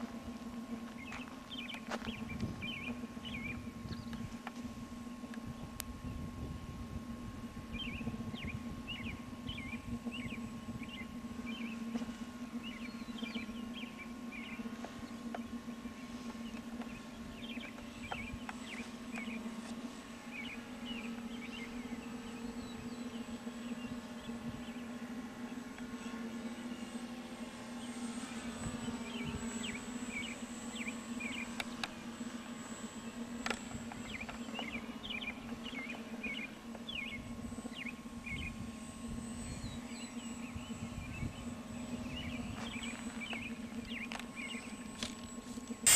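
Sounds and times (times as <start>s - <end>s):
birds chirping: 0.0s - 4.4s, 7.7s - 26.9s, 27.7s - 32.1s, 32.8s - 38.7s, 39.4s - 45.9s
rc plane electric motor whine: 0.0s - 45.9s
wind buffeting microphone: 2.1s - 11.0s.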